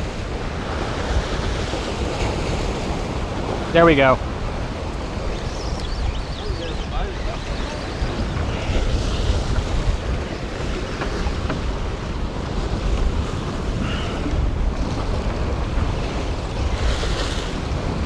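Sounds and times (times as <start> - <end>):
waves washing: 0.0 - 18.0
wind buffeting microphone: 0.0 - 18.0.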